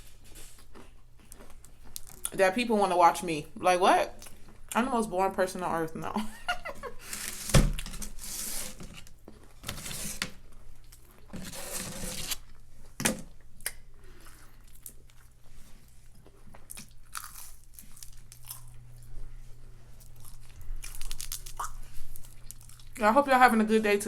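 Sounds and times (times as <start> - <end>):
crunchy food chewing: 0.0 - 2.3, 13.6 - 23.0.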